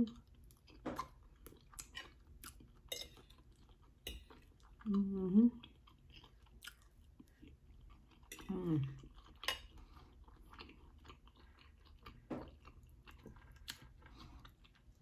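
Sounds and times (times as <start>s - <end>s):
person chewing rice: 0.0s - 15.0s.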